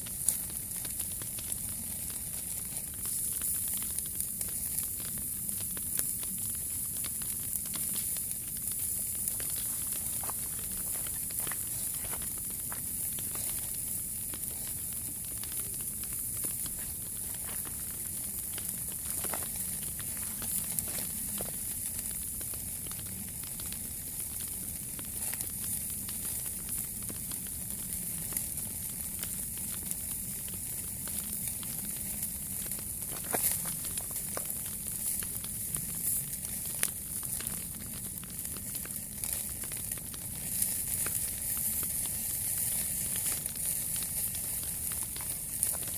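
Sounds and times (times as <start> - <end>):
sharp fire pops: 0.0 - 45.9
wood fire crackling: 0.0 - 45.9.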